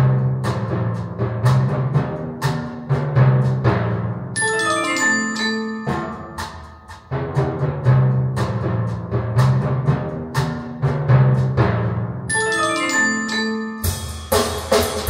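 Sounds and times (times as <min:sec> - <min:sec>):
percussion-heavy music over speakers: 0:00.0 - 0:15.0.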